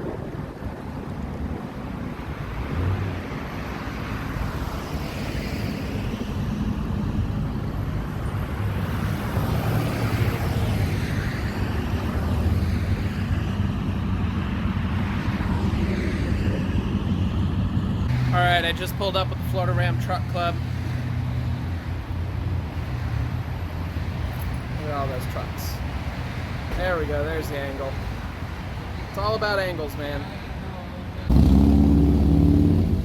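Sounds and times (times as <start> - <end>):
road noise: 0.0 - 33.0
car engine drone: 0.4 - 24.6, 31.2 - 33.0.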